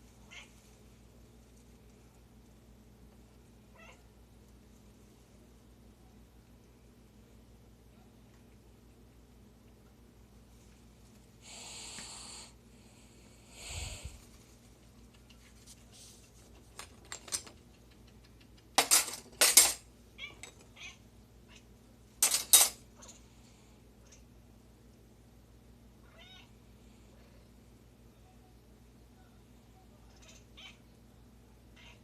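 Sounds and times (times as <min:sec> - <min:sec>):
cat breathy noise: 0:11.4 - 0:14.4
silverware clattering: 0:18.8 - 0:19.8, 0:22.2 - 0:22.8.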